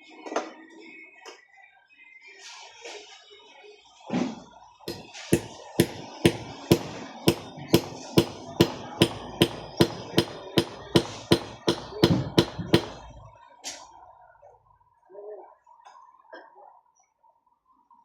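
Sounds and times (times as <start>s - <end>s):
hammer blows ringing: 4.9s - 13.2s.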